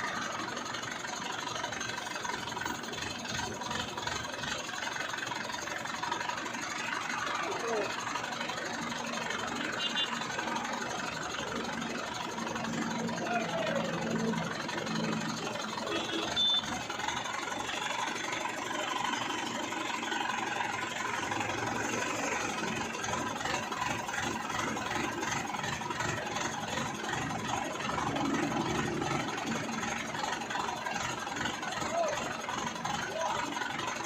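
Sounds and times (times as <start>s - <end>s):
vehicle engine running: 0.0s - 34.0s
short high beep: 16.0s - 16.7s.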